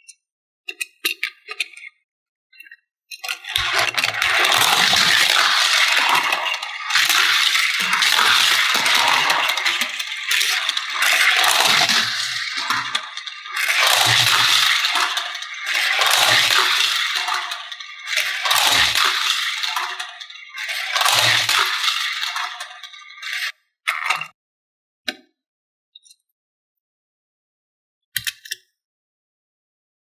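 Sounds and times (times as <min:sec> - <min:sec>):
small hard toys clattering: 0:03.1 - 0:23.5.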